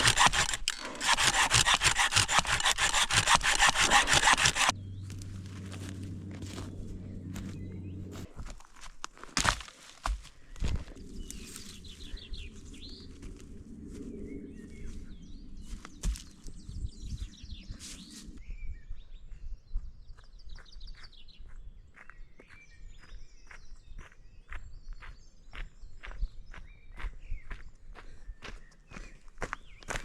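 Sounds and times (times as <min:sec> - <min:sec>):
crunching footsteps: 0:00.0 - 0:18.4
low steady rumble: 0:04.7 - 0:08.6
small birds chirping: 0:10.2 - 0:30.0.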